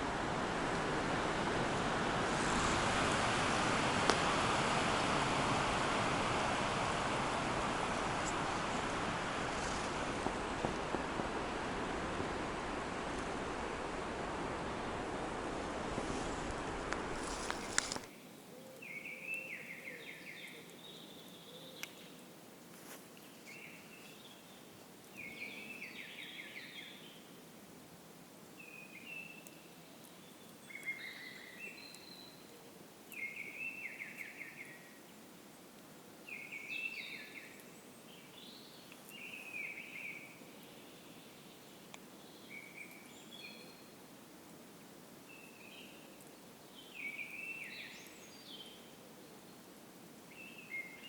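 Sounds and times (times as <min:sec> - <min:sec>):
wind noise on microphone: 0:00.0 - 0:18.1
faint steady hiss: 0:00.0 - 0:51.0
songbird singing: 0:17.0 - 0:22.4, 0:23.2 - 0:27.5, 0:28.4 - 0:44.6, 0:45.2 - 0:49.7, 0:50.3 - 0:51.0.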